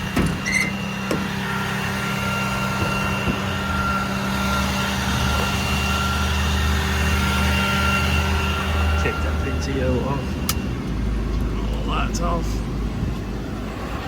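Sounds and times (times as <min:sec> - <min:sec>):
constant high whine: 0:00.0 - 0:14.0
truck engine idling: 0:00.0 - 0:14.0.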